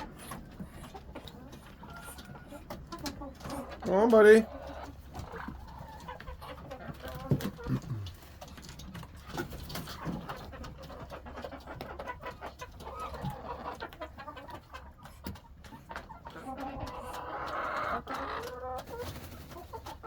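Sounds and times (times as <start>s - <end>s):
ducks making soft low calls: 0.0s - 8.6s.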